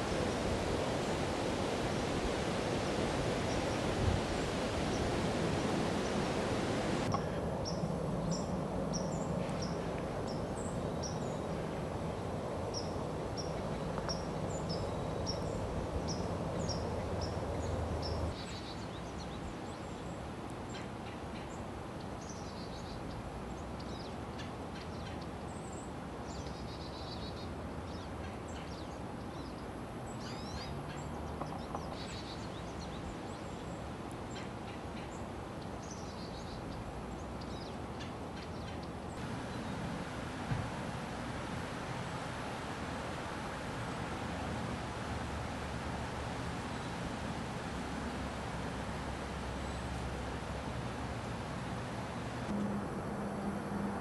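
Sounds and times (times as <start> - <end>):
steady rushing noise: 0.0 - 18.4
songbird chirps: 3.3 - 11.7, 12.6 - 40.7
low hum: 44.7 - 54.0.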